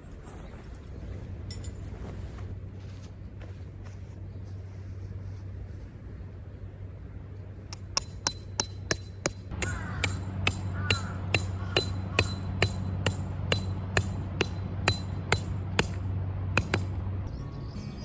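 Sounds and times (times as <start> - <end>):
steady low hum: 0.0 - 17.5
hammer striking metal tent peg: 7.7 - 16.0, 16.6 - 17.0.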